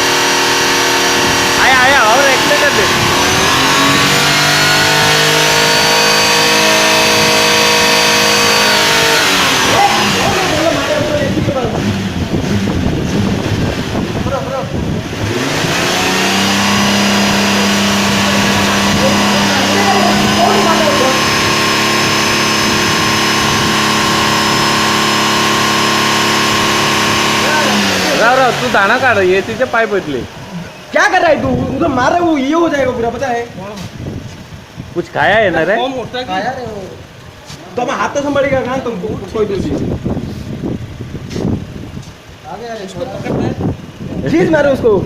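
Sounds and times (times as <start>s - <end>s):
engine running at raised speed: 0.0s - 30.9s.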